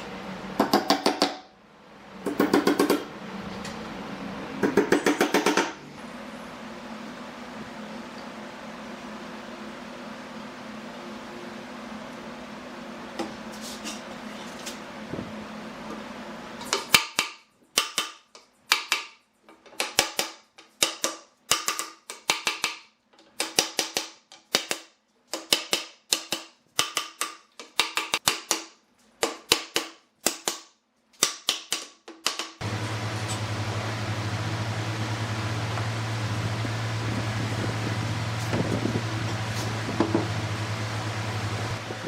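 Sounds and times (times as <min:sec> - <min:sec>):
low machine hum: 0:00.0 - 0:01.0, 0:01.6 - 0:16.7, 0:32.6 - 0:42.0
steady background hum: 0:00.0 - 0:31.3, 0:32.6 - 0:42.0.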